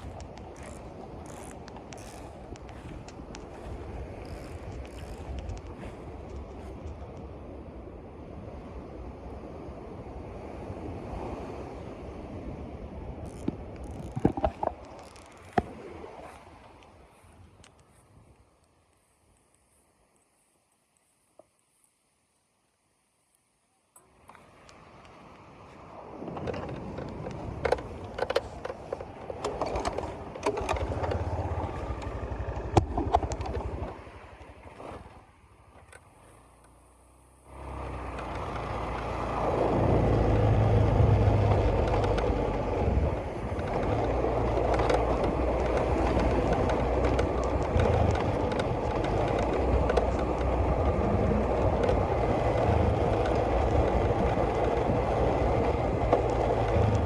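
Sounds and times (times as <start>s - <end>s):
engine running steadily: 0.0s - 17.7s, 25.6s - 57.0s
rush of wind: 0.0s - 21.1s, 21.7s - 57.0s
scattered clicks and knocks: 13.3s - 15.7s, 26.3s - 34.0s, 41.4s - 42.8s, 43.5s - 57.0s.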